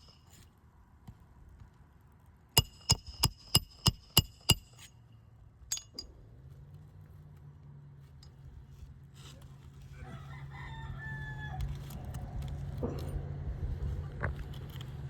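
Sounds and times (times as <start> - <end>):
rooster crowing: 9.9 - 12.0.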